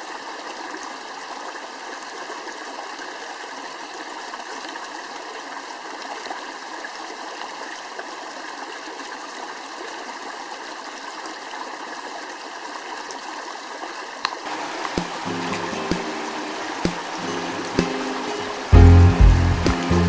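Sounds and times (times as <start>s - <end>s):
stream water rushing: 14.4s - 20.0s.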